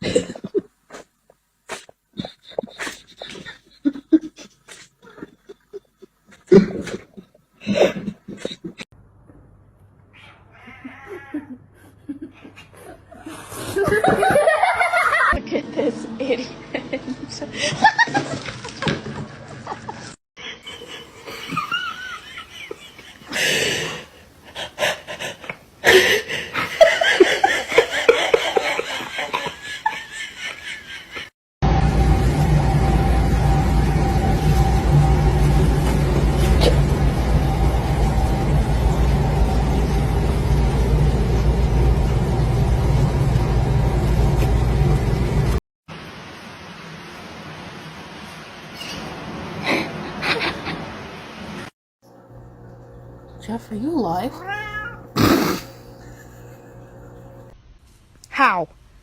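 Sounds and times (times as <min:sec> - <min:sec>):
people laughing: 0:11.3 - 0:18.6, 0:19.6 - 0:23.7, 0:26.5 - 0:31.3.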